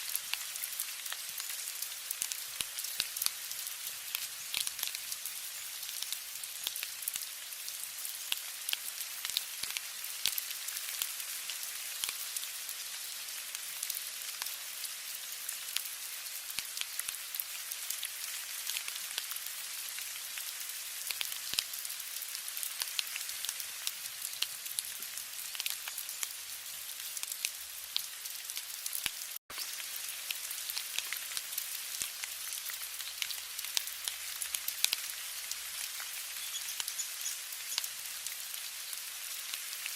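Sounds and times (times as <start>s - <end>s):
rain hissing: 14.7s - 39.9s
raindrops ticking: 28.9s - 39.0s.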